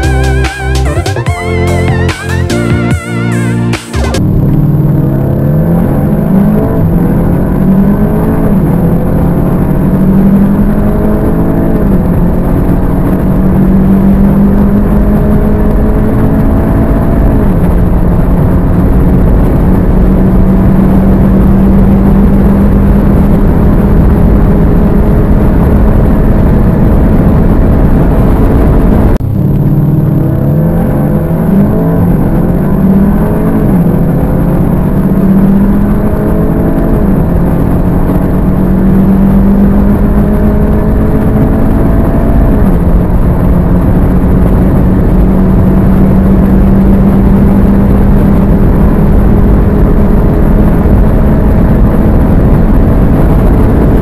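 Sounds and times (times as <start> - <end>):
car engine at full throttle: 0.0 - 54.0
wind and road noise: 0.0 - 54.0.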